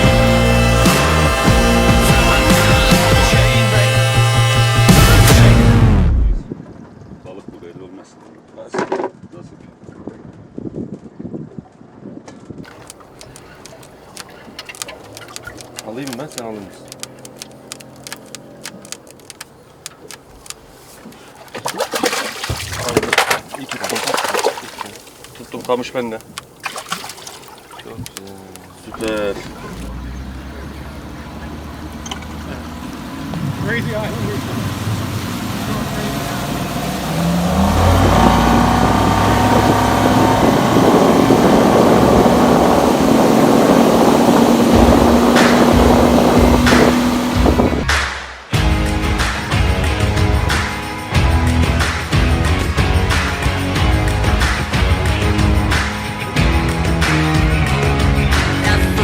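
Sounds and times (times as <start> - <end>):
boat engine running: 0.0 - 6.4, 12.7 - 47.9, 57.6 - 59.0
gear clicking and knocking: 12.7 - 30.1
voices: 12.7 - 38.7, 58.4 - 59.0
rushing water: 12.7 - 47.9
wind noise: 32.8 - 47.9.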